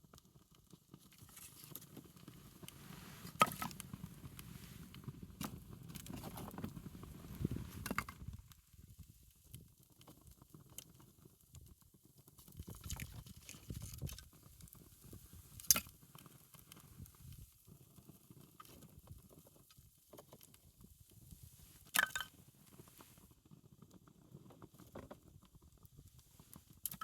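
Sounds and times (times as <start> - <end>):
wood fire crackling: 0.2 - 8.6.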